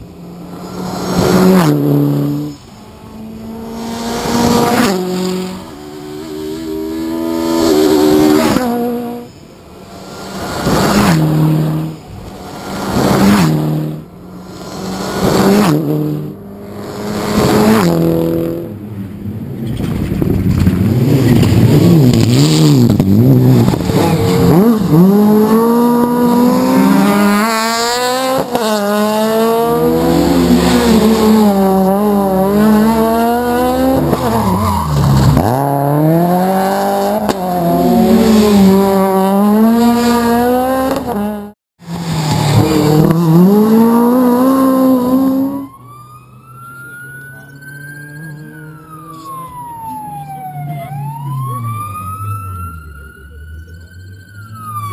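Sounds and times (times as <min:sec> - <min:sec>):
rally car engine revving: 0:00.0 - 0:45.7
tyre squeal: 0:34.0 - 0:35.7.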